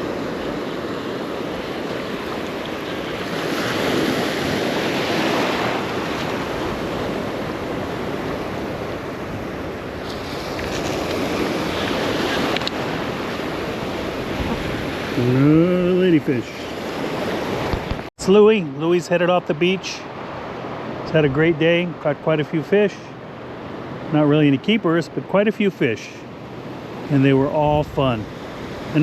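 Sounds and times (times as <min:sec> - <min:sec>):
surf breaking on beach: 0:00.0 - 0:18.1
wind buffeting microphone: 0:03.1 - 0:15.8, 0:27.5 - 0:29.0.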